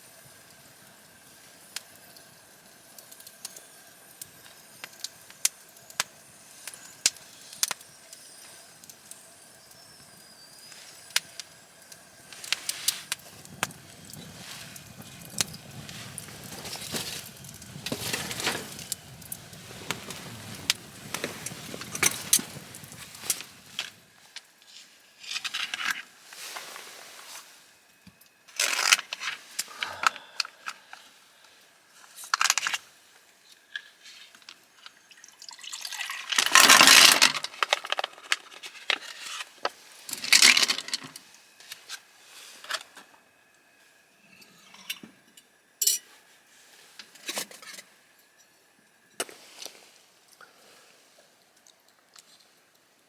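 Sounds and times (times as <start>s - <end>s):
rustling gear: 12.4s - 24.1s.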